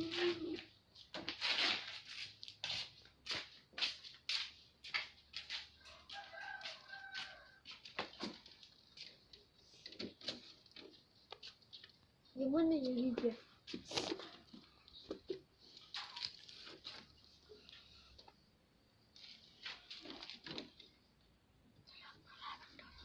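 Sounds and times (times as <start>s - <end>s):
rooster crowing: 5.8s - 7.8s.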